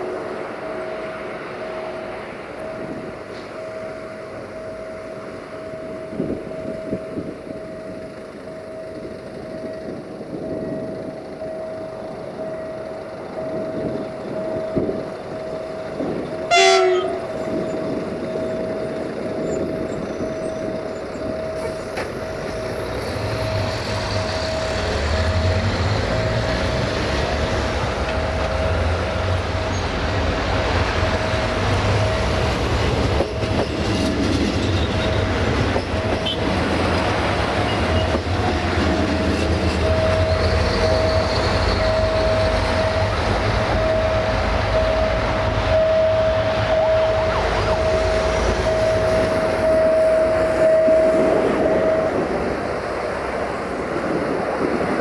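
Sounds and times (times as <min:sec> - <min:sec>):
steady high tone: 0:00.0 - 0:53.1
diesel train engine rumble: 0:00.0 - 0:55.0
train horn blast: 0:16.4 - 0:17.5, 0:36.2 - 0:36.6.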